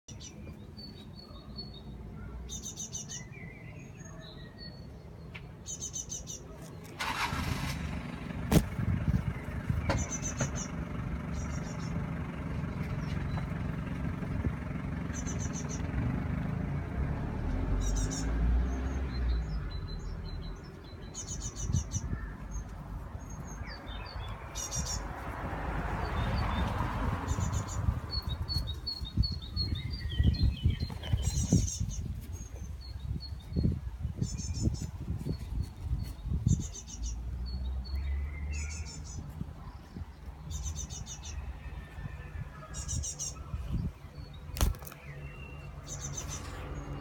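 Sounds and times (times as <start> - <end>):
steady low rumble: 7.8 - 17.0
young bird chirping: 9.1 - 12.0, 15.1 - 15.9, 19.2 - 25.1, 27.3 - 37.2.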